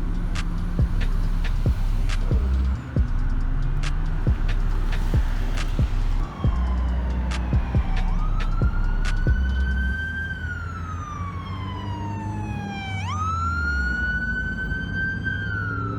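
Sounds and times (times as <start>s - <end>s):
low rumble: 0.0s - 10.0s
police siren wailing: 0.0s - 15.9s.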